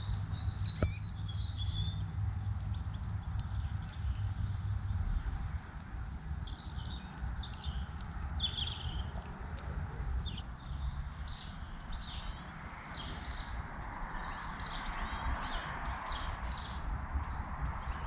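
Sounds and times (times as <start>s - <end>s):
steady low rumble: 0.0s - 12.5s
small songbirds chirping: 0.0s - 18.0s.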